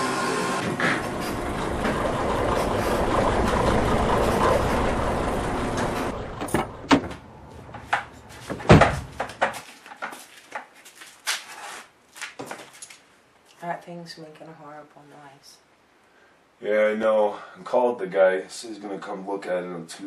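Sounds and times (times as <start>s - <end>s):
garage door opener running: 0.0s - 7.1s
sharp clanks and knocks: 5.8s - 10.7s.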